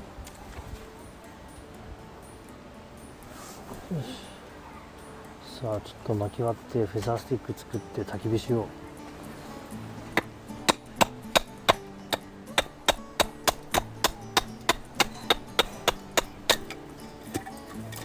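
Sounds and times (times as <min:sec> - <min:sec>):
firewood being split: 0:10.0 - 0:18.0.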